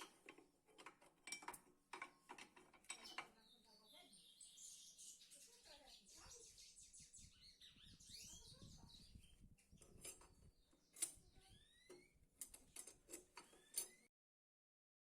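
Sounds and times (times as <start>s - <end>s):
faint bird chirps: 3.0s - 12.2s.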